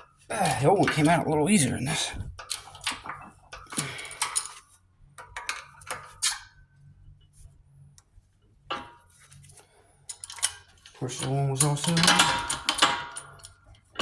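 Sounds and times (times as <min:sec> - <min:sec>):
metal tools clinking: 0:10.2 - 0:13.5.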